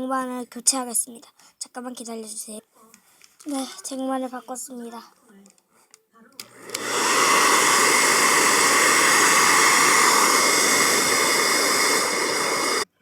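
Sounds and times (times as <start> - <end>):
hair dryer running: 6.4 - 13.0.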